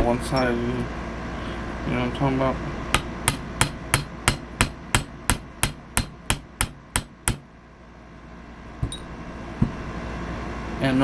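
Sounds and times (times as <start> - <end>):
hammer tapping metal: 3.0 - 7.5.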